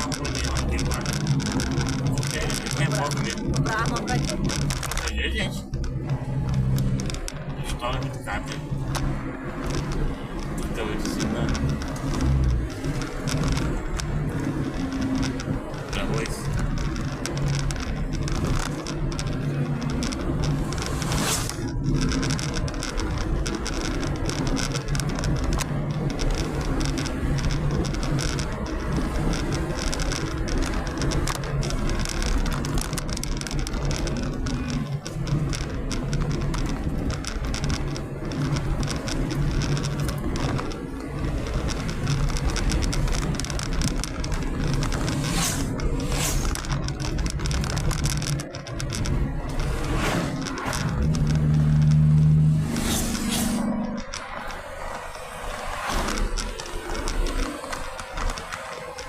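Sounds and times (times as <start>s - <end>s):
low engine hum: 0.0s - 59.0s
tyre and road rumble: 0.0s - 59.0s.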